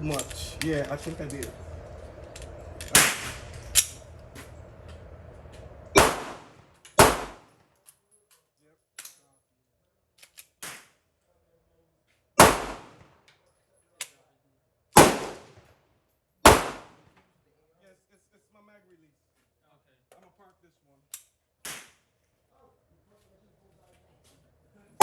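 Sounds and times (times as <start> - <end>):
loud pistol shots: 2.9 - 3.4, 5.9 - 7.4, 12.4 - 13.0, 15.0 - 15.5, 16.5 - 17.0
fainter gunshots: 2.9 - 3.5, 5.9 - 7.4, 12.4 - 13.1, 15.0 - 15.6, 16.5 - 17.0.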